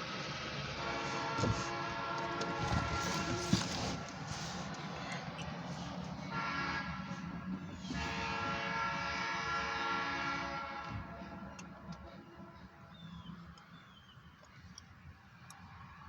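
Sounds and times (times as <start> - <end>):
distant train horn blasts: 0.5 - 4.6, 6.1 - 13.3.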